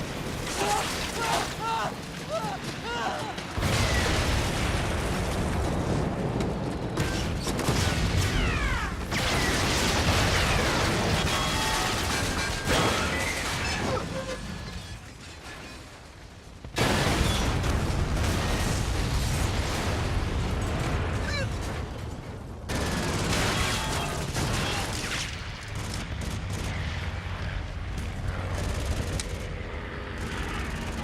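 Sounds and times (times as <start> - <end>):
explosions booming: 2.0 - 14.5, 16.6 - 28.6.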